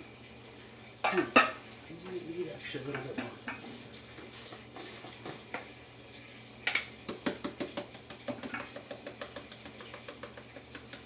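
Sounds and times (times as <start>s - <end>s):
utensil stirring sauce in saucepan: 2.6s - 5.8s
knock: 7.1s - 11.0s.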